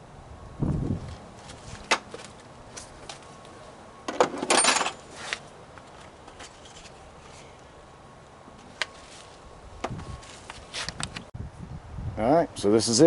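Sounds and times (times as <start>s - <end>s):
clatter of hard knocks and rattling: 4.1s - 5.0s.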